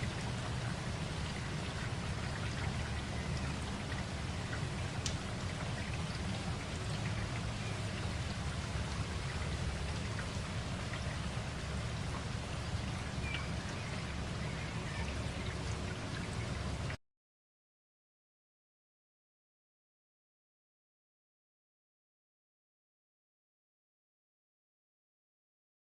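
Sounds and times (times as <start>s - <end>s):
steady rain: 0.0s - 17.0s
individual raindrop hits: 3.9s - 7.5s.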